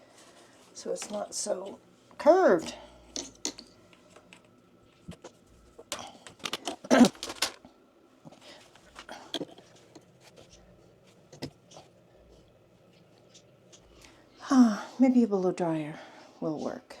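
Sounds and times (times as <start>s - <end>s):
hands handling objects: 3.2s - 7.7s.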